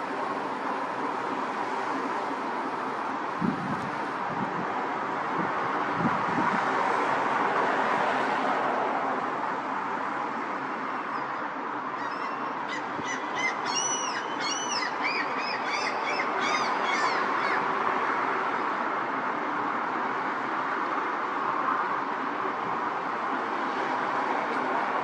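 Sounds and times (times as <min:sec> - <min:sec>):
outdoor background rush: 0:00.0 - 0:25.0.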